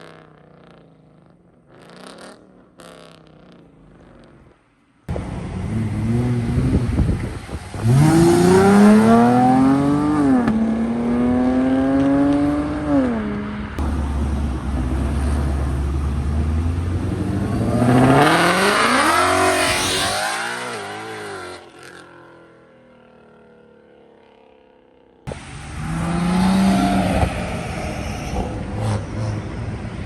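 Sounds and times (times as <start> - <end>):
car engine revving: 5.1 - 21.9, 25.3 - 30.0.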